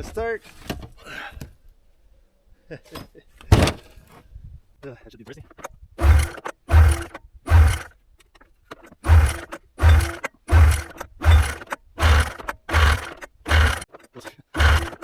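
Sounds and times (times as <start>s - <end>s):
snowmobile engine pull-starting: 5.6s - 8.0s, 8.7s - 15.0s.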